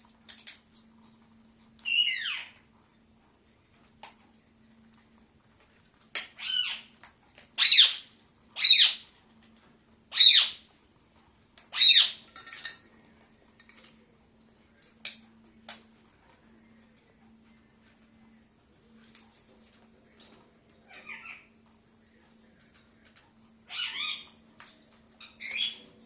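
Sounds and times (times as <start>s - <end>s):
parakeet squawking: 1.9s - 2.6s, 6.4s - 6.9s, 7.6s - 9.0s, 10.1s - 10.6s, 11.7s - 12.2s, 23.7s - 24.3s.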